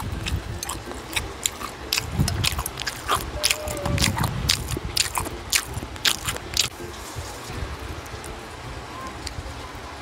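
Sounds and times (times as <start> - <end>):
wet chewing with lip smacks: 0.0 - 6.8.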